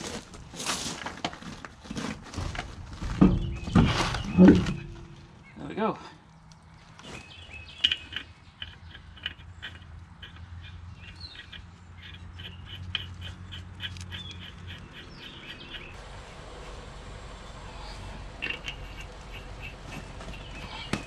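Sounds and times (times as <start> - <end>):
birds chirping: 3.2 - 21.0
faint low hum: 15.9 - 21.0.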